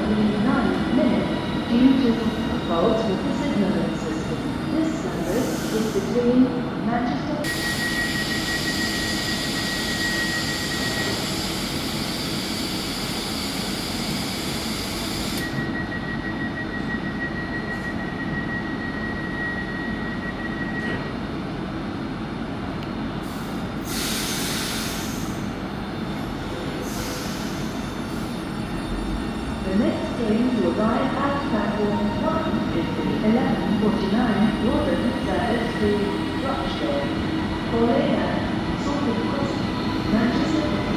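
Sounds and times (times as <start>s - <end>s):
train rumbling: 0.0s - 7.6s, 20.8s - 40.9s.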